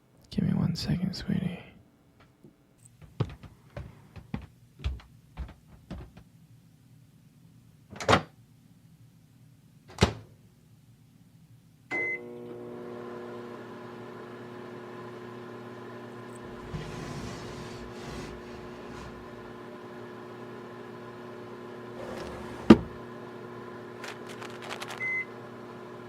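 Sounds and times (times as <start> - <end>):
microwave oven beep: 11.9 - 13.0, 25.0 - 25.6
microwave oven humming: 11.9 - 26.0.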